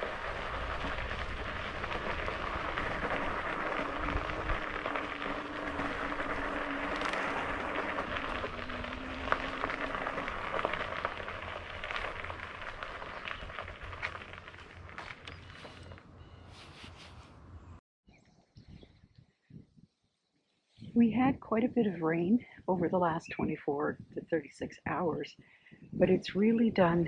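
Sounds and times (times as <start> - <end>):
tyres crunching on dirt: 0.0 - 17.3.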